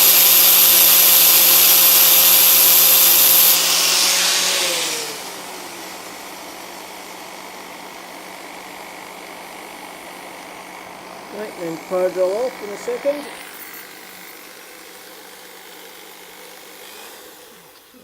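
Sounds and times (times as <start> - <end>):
power drill motor hum: 0.0 - 5.1
grinder motor winding down: 0.0 - 6.0.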